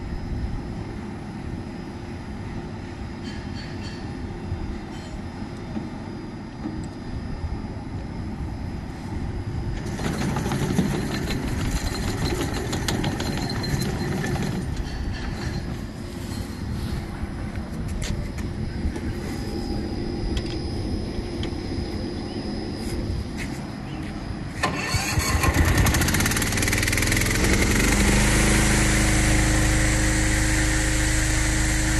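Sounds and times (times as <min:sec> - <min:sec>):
dense clattering and rattling: 0:09.8 - 0:15.9
mower engine running: 0:09.8 - 0:16.3, 0:24.6 - 0:31.9.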